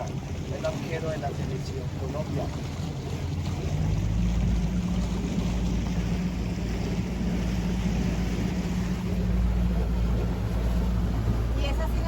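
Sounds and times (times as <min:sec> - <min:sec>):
boat motor droning: 0:00.0 - 0:12.0
water and wind hissing: 0:00.0 - 0:12.0.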